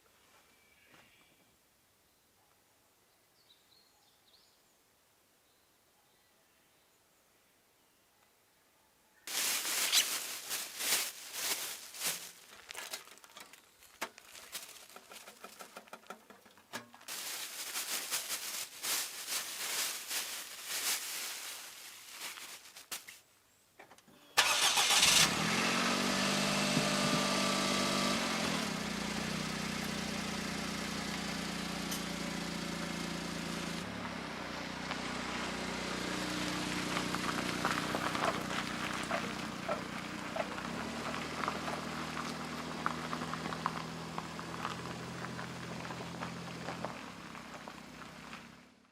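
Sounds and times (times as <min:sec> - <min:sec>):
clattering handling noises: 0:09.3 - 0:21.0
small truck engine idling: 0:24.4 - 0:48.6.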